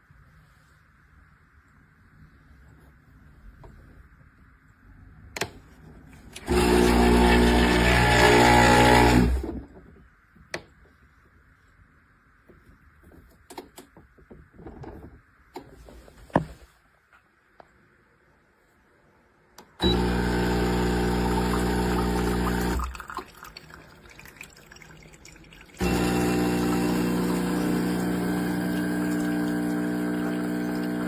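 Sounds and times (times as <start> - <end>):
espresso machine pump buzzing: 6.4 - 9.5, 19.8 - 23.2, 25.8 - 31.0.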